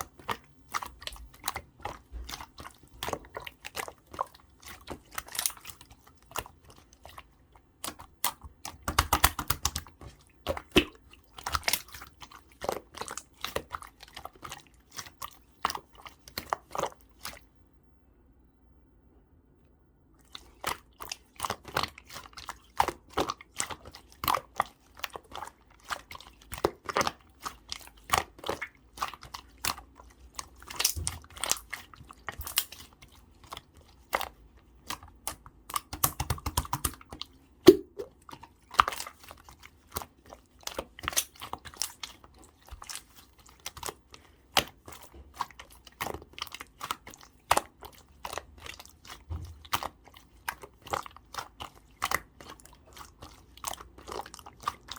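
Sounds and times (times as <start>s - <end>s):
slime clicking and popping: 7.8s - 12.0s, 34.9s - 38.2s.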